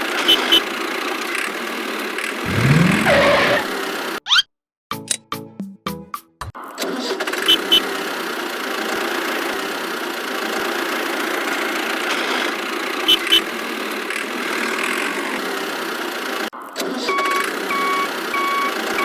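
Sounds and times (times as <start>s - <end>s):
short high blips: 2.5s - 3.7s.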